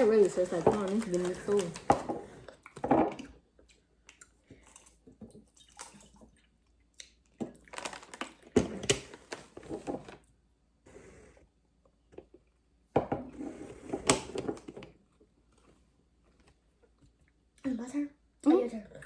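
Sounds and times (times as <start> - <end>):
chips crunching while chewed: 7.0 - 9.5.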